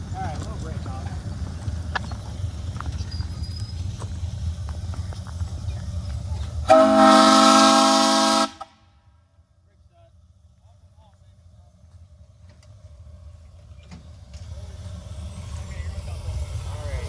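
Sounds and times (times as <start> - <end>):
low rumble: 0.0 - 6.7
steam locomotive whistle blast: 6.6 - 8.8.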